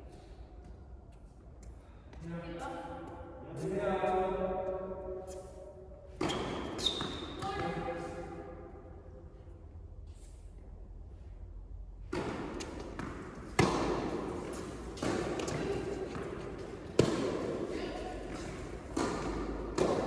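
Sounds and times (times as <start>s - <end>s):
racket striking tennis ball: 12.0s - 20.0s
tennis ball bouncing: 12.0s - 20.0s.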